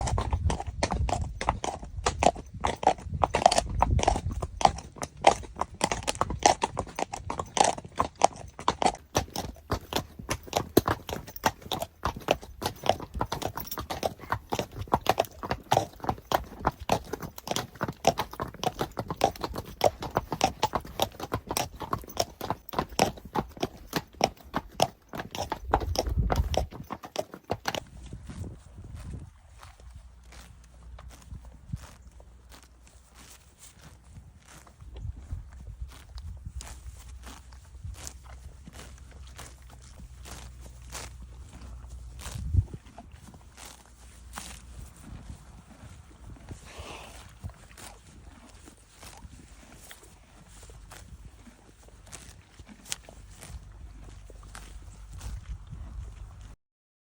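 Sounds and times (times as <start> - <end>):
horse hooves clip-clopping: 0.0 - 56.6.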